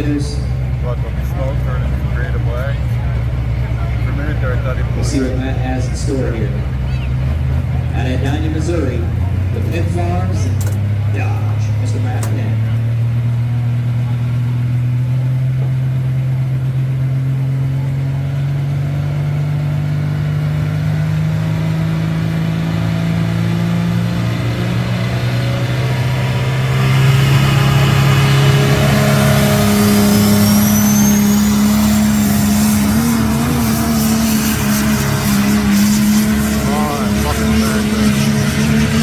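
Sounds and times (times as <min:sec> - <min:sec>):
diesel pickup engine under load: 0:00.0 - 0:39.0
high-pitched whistle: 0:30.0 - 0:31.7.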